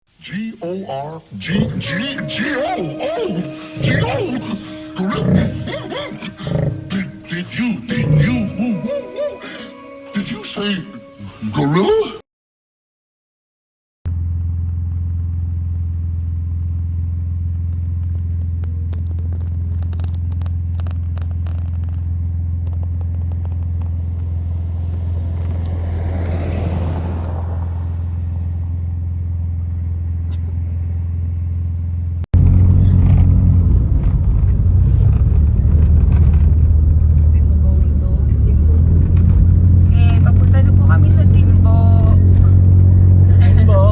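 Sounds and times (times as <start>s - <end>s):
diesel engine droning: 0.3s - 11.5s, 14.1s - 43.9s.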